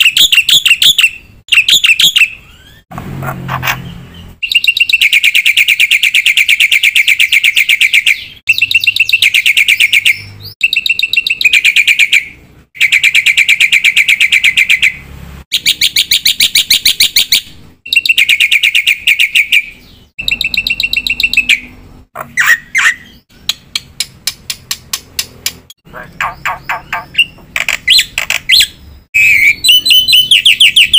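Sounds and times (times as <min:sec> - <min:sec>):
bird singing buzzy trilled chatter: 0:03.6 - 0:30.9
bird whistled notes: 0:26.2 - 0:30.9.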